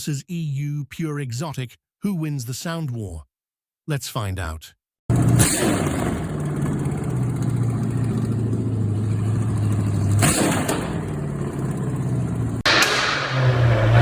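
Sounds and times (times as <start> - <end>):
car engine running: 5.1 - 12.6.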